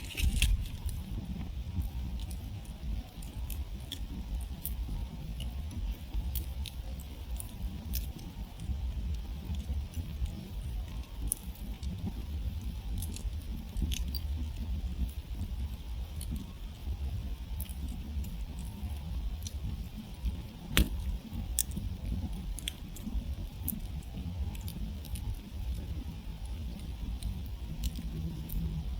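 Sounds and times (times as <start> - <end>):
low rumble of flames: 0.0 - 28.9
wood campfire crackling: 0.0 - 28.9
sharp pops of fire: 20.5 - 25.4.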